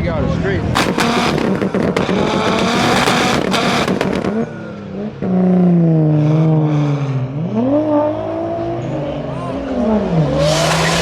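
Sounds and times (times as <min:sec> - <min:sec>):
exhaust crackling and popping: 0:00.8 - 0:04.4
car engine revving hard: 0:00.8 - 0:11.0.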